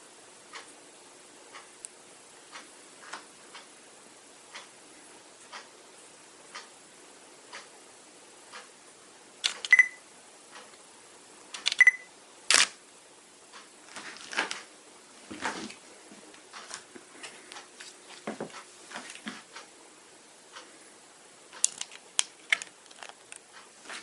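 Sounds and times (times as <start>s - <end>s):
lens focus clicking and whirring: 9.4s - 9.9s, 11.6s - 12.8s
camera focus beep: 9.7s - 10.0s, 11.8s - 12.1s.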